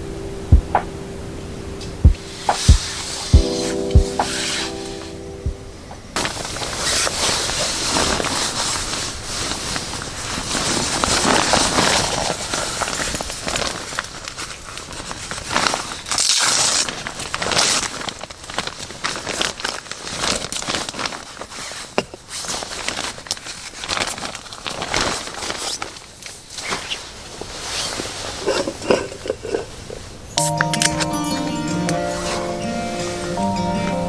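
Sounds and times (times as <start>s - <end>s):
rustling handling noises: 16.7s - 30.2s.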